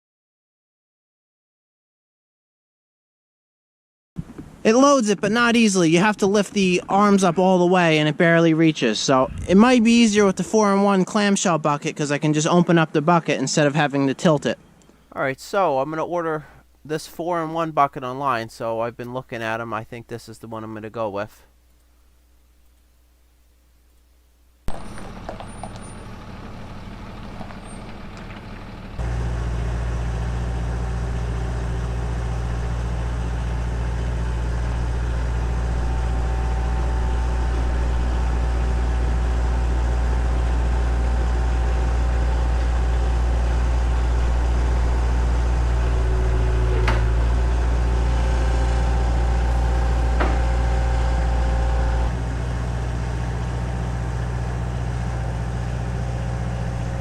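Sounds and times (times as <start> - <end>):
vehicle engine running: 9.1 - 10.7, 24.7 - 57.0.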